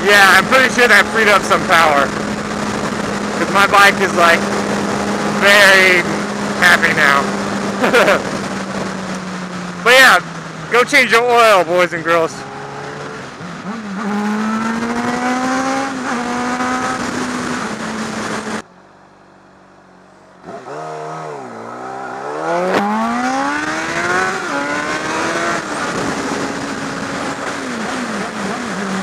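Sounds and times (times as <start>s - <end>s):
wind noise: 0.0s - 10.8s, 22.5s - 29.0s
motorcycle engine accelerating: 0.0s - 18.7s, 19.8s - 29.0s.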